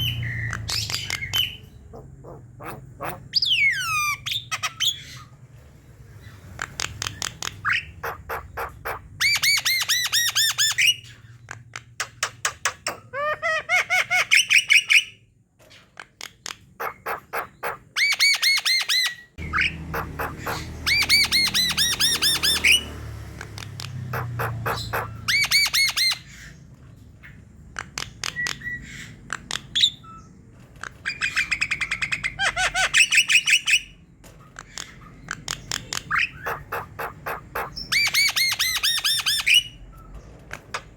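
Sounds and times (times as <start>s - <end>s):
myna singing clicks and squawks: 0.0s - 5.4s, 6.2s - 13.2s, 15.7s - 40.9s.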